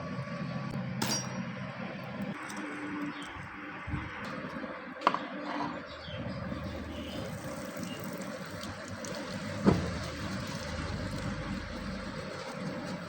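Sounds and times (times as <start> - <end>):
steady running noise: 0.0 - 13.0
sharp metal knocks: 1.0 - 1.5.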